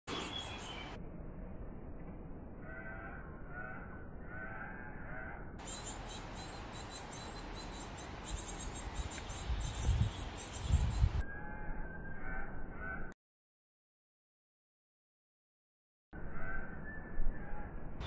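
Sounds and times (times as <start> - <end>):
high bird chirping: 0.1 - 1.0, 5.6 - 12.3
hoarse bird calls: 2.6 - 13.2.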